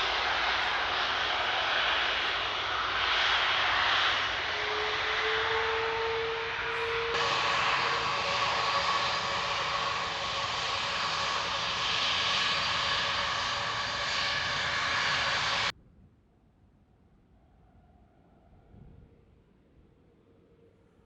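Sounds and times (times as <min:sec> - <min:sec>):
jet engines running: 0:00.0 - 0:15.7.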